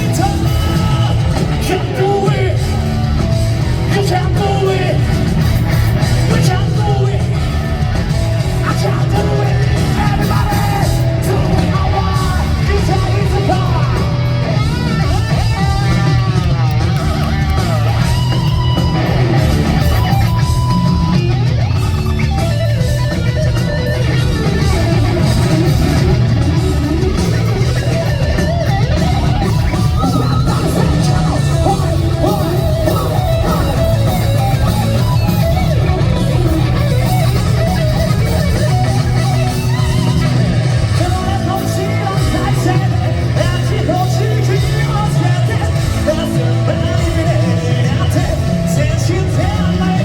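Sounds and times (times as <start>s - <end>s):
electric guitar lead: 0.0s - 50.0s
hard rock band playing: 0.0s - 50.0s.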